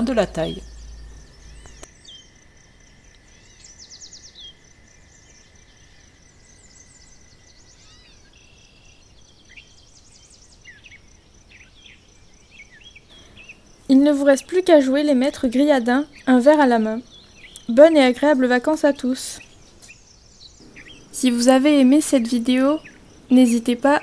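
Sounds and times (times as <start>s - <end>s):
bird chirps and trills: 0.0s - 2.4s, 3.3s - 24.0s
low background hiss: 0.0s - 24.0s.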